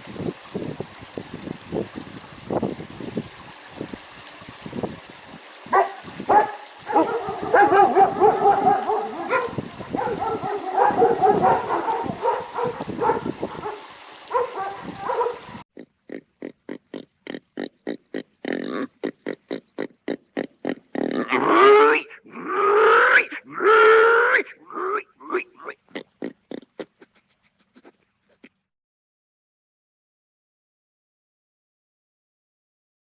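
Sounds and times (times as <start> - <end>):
animal calls: 5.8 - 28.6.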